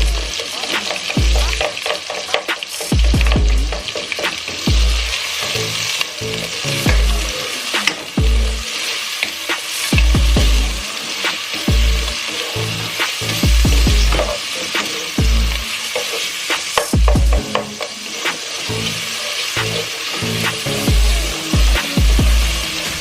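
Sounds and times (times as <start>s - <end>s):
onions sizzling in hot oil: 0.0s - 23.0s
spatula scraping a pan: 0.3s - 6.6s, 10.8s - 20.6s
dull low thumps: 3.0s - 3.8s, 10.0s - 10.8s, 13.4s - 14.3s, 17.0s - 17.4s.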